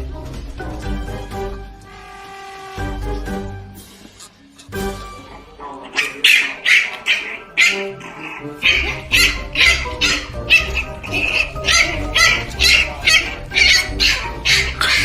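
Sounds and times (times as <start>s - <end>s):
dog barking: 5.9s - 15.0s.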